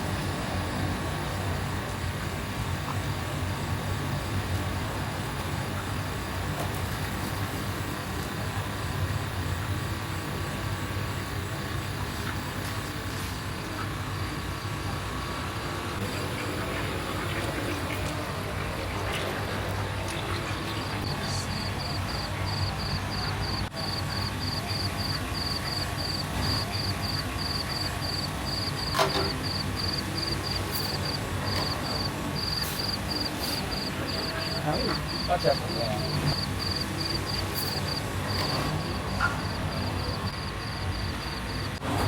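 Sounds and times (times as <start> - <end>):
low mechanical drone: 0.0 - 42.0
steady low hum: 0.0 - 42.0
insect chirping: 21.0 - 41.8.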